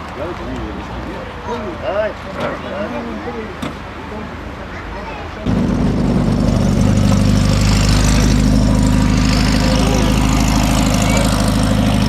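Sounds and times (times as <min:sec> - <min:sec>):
engine idling: 0:05.5 - 0:12.0.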